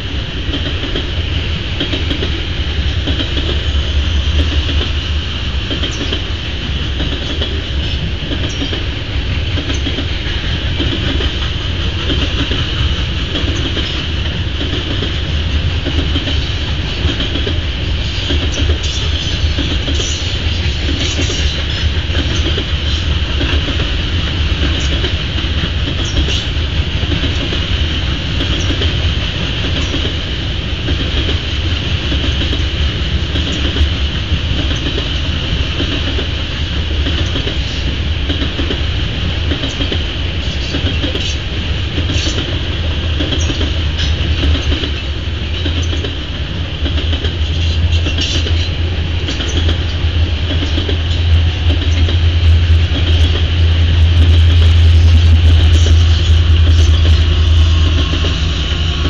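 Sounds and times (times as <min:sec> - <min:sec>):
freight cars rumbling and clattering: 0:30.8 - 0:59.0
steady high-pitched tone: 0:51.2 - 0:59.0.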